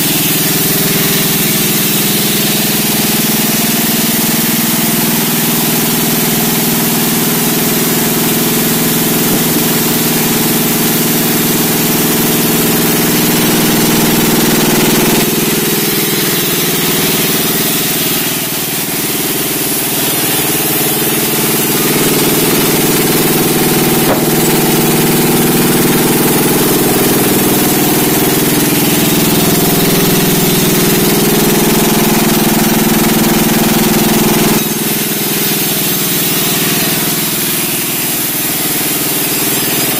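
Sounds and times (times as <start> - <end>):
engine-driven sawmill running: 0.0 - 39.9.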